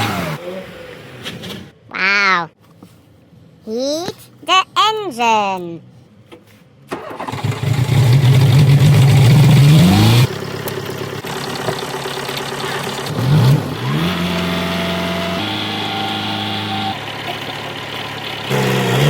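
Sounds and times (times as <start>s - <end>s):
car engine starting and idling: 6.9s - 19.0s.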